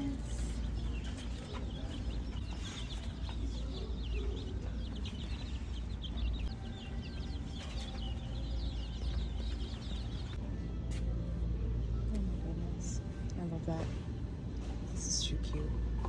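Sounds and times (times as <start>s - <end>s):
chicks peeping: 0.0s - 10.4s
steady low hum: 0.0s - 16.0s.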